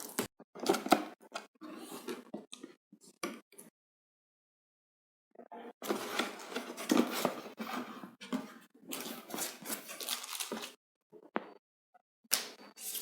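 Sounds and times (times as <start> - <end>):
cardboard and wrapping rustling: 5.8 - 10.8.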